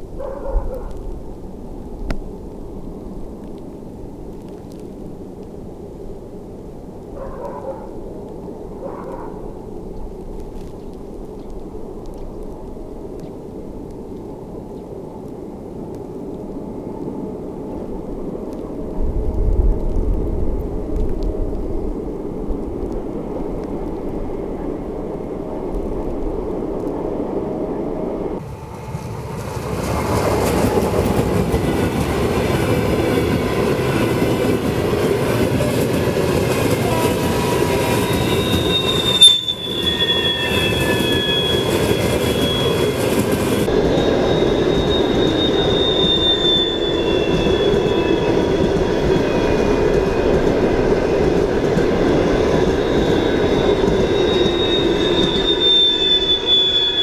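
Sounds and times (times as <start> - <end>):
train wheels rumbling on rails: 0.0 - 57.0
high wheel squeals: 32.0 - 57.0.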